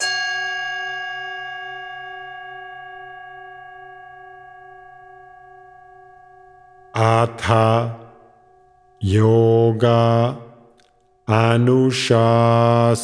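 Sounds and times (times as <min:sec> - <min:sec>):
singing bowl ringing: 0:00.0 - 0:07.0, 0:08.1 - 0:09.0.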